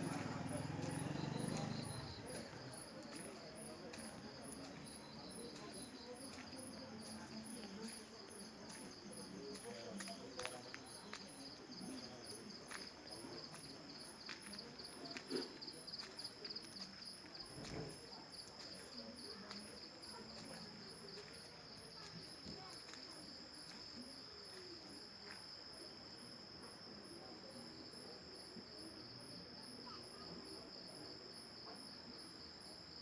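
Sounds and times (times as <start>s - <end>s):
crickets chirping: 0.0s - 33.0s.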